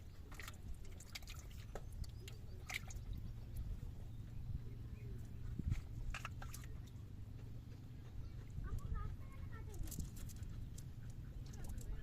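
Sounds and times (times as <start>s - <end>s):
water splashing and dripping: 0.0s - 3.7s, 5.7s - 7.0s
steady low rumble: 0.0s - 12.0s.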